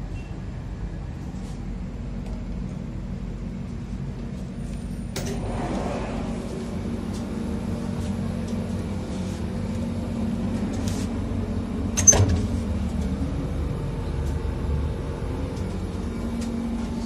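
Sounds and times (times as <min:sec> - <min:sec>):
train coach rumble: 0:00.0 - 0:17.0
sliding door opening: 0:05.2 - 0:06.6.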